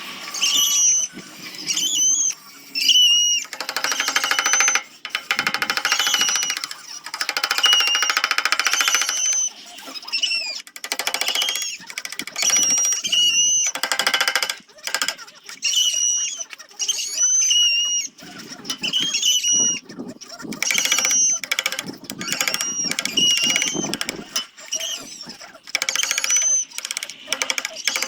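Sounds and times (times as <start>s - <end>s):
power grinder chattering: 3.3s - 9.5s, 10.7s - 15.3s, 20.6s - 28.0s.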